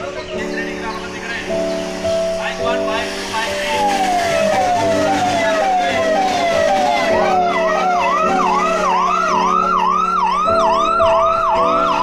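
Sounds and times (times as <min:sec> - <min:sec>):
police siren yelping: 0:03.4 - 0:12.0.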